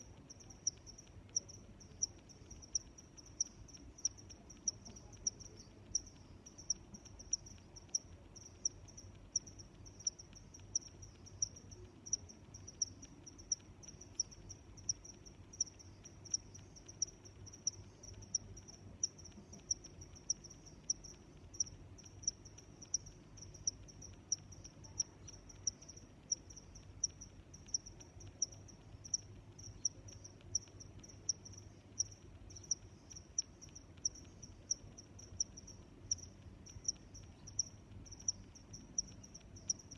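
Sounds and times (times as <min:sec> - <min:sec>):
cricket chirping: 0:00.0 - 0:39.9
faint low rumble: 0:00.0 - 0:39.9.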